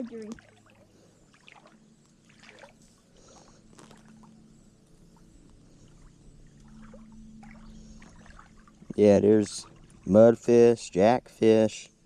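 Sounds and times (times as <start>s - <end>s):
light water splashes: 0.0s - 10.2s
water trickling and lapping: 0.0s - 10.8s.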